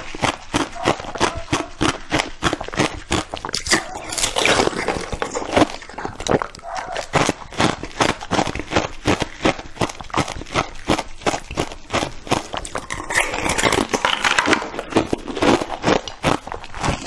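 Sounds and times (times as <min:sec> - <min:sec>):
wet chewing clicks: 0:00.0 - 0:17.0.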